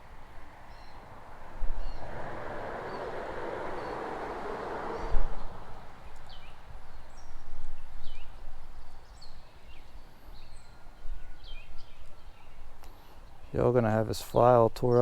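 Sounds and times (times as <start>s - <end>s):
small birds chirping: 0.0s - 15.0s
low uneven rumble: 0.8s - 7.1s.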